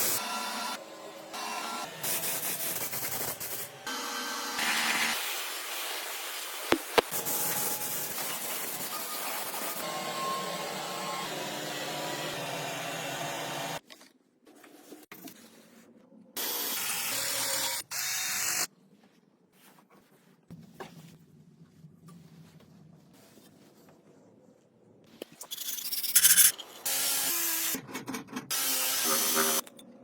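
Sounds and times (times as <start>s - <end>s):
workshop tool running: 6.7s - 13.8s.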